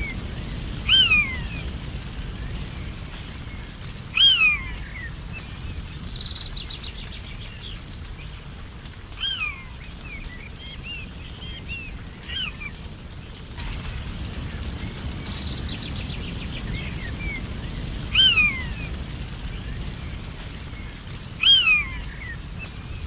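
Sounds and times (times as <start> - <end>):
low forest hum: 0.0 - 23.0
high bird trill: 0.9 - 1.5, 4.1 - 5.0, 18.1 - 18.7, 21.4 - 22.3.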